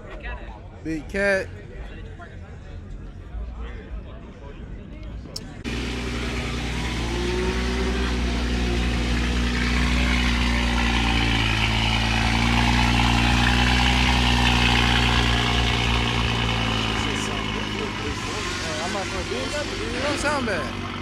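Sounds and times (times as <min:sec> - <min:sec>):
car engine idling: 0:05.4 - 0:21.0.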